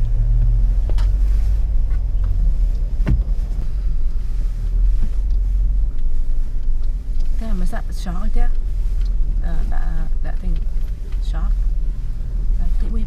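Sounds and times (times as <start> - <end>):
off-road vehicle engine rumbling: 0.0 - 13.0.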